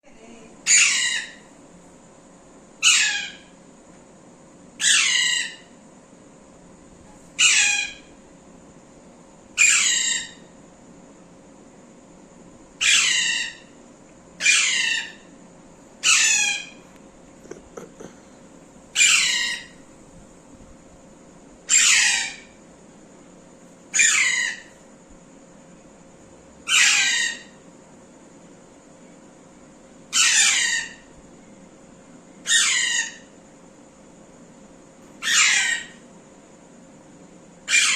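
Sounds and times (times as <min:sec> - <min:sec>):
parrot squawking: 0:00.6 - 0:01.4, 0:02.8 - 0:03.4, 0:04.8 - 0:05.6, 0:07.4 - 0:08.0, 0:09.6 - 0:10.4, 0:12.8 - 0:13.6, 0:14.4 - 0:15.2, 0:16.0 - 0:16.8, 0:19.0 - 0:19.8, 0:21.7 - 0:22.5, 0:24.0 - 0:24.7, 0:26.7 - 0:27.5, 0:30.2 - 0:31.0, 0:32.5 - 0:33.2, 0:35.2 - 0:36.0, 0:37.7 - 0:37.9.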